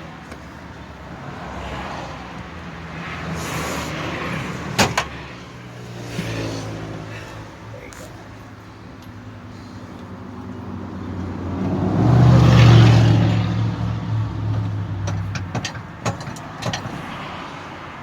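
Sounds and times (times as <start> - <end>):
car driving by: 10.7 - 15.3.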